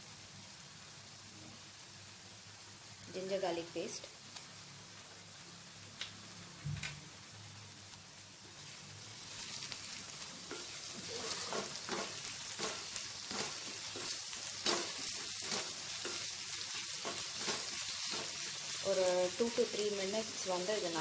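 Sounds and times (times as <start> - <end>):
onions sizzling in hot oil: 0.0 - 21.0
spatula stirring: 9.4 - 20.8.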